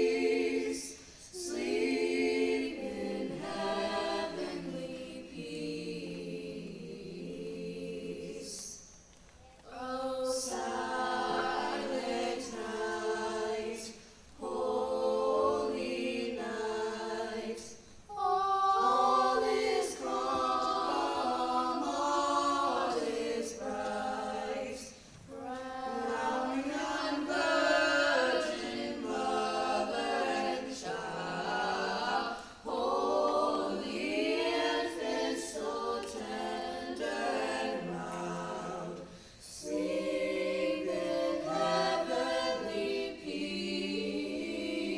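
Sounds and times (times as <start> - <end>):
choir singing a cappella: 0.0 - 44.9
singers breathing: 39.1 - 39.5.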